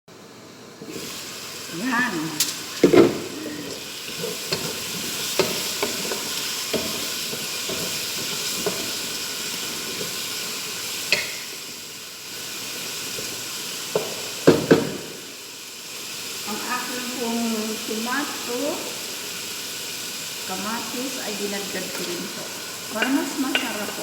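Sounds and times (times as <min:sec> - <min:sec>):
food sizzling in a frying pan: 0:00.1 - 0:24.0
utensil clicking against pan: 0:23.0 - 0:24.0.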